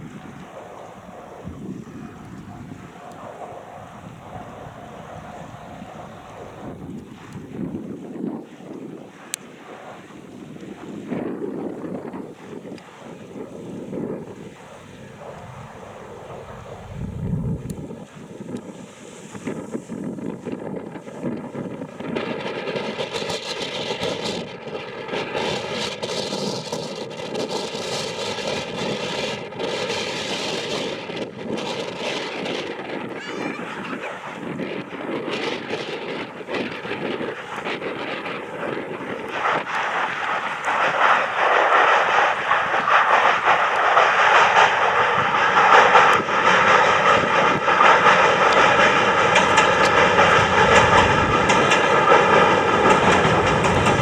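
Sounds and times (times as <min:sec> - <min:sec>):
faint whining tones: 0:00.0 - 0:19.0
electric train passing: 0:00.0 - 0:26.6, 0:32.3 - 0:54.0.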